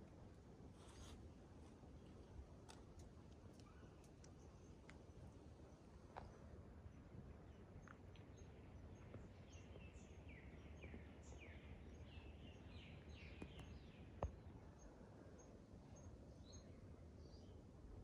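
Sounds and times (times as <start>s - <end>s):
faint bird chirps: 3.5s - 4.8s.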